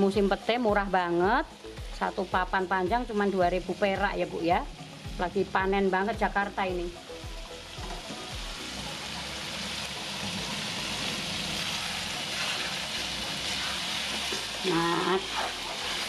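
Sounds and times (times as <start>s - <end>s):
food sizzling in oil: 0.0s - 16.0s
spatula stirring in wok: 7.8s - 16.0s.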